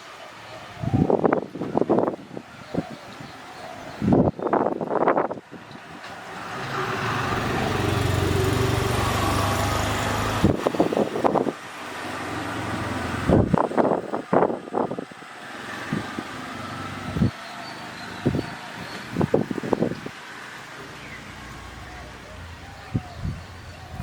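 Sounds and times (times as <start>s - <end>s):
vehicle engine running: 5.6s - 24.0s.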